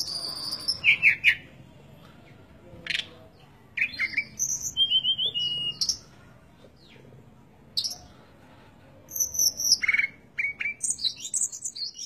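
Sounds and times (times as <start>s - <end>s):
bird chirping and whistling: 3.8s - 6.0s, 9.1s - 12.0s.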